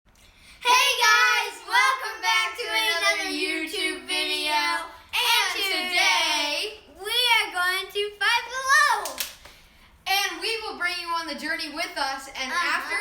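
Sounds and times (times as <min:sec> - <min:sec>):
child singing: 0:00.6 - 0:06.7.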